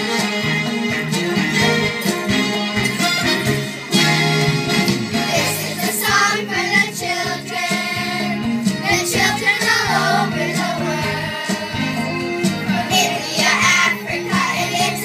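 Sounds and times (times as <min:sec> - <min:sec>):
instrumental accompaniment with beat: 0:00.0 - 0:15.0
children's choir singing: 0:05.2 - 0:15.0.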